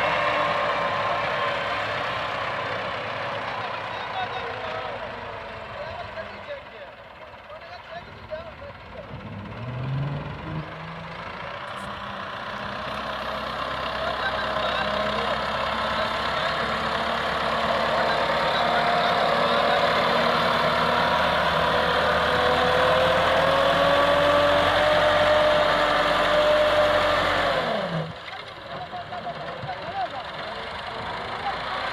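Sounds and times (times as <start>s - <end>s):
tractor diesel engine running: 0.0s - 31.9s.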